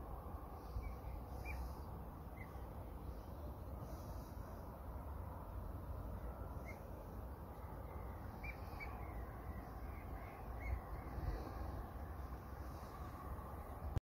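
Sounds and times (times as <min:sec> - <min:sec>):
low rumble: 0:00.0 - 0:14.0
bird calling: 0:00.6 - 0:02.6, 0:06.6 - 0:06.9, 0:08.3 - 0:11.7.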